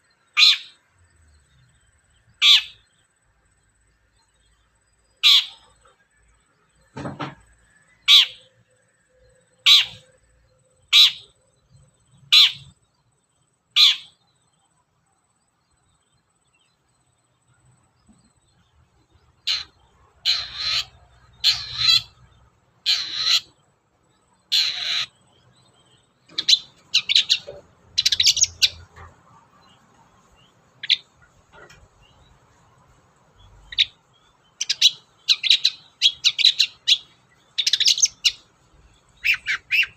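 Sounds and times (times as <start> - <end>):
bird calling harsh notes: 0.3 - 0.8, 2.4 - 2.9, 5.2 - 5.8, 8.0 - 8.5, 9.6 - 10.2, 10.9 - 11.4, 12.2 - 12.8, 13.8 - 14.2, 19.4 - 22.2, 22.8 - 23.6, 24.5 - 25.3, 26.3 - 29.1, 39.2 - 39.9
bird chattering: 2.4 - 2.9, 5.2 - 5.9, 8.0 - 8.5, 9.6 - 10.2, 10.9 - 11.4, 12.2 - 12.8, 13.8 - 14.2, 19.2 - 23.7, 24.4 - 32.3, 33.4 - 39.9.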